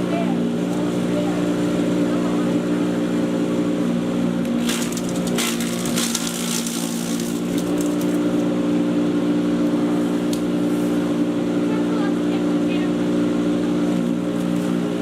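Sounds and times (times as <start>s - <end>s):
chipper shredder motor hum: 0.0s - 15.0s
crackling of material shredded: 4.4s - 8.4s.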